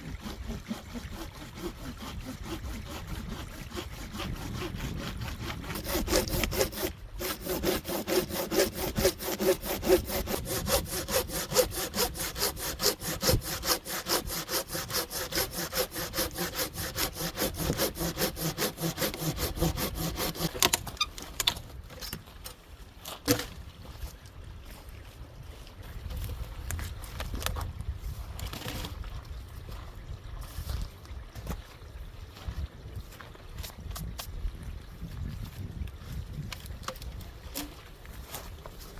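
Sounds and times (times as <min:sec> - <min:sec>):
hand saw cutting wood: 0:00.0 - 0:21.5, 0:36.9 - 0:38.5.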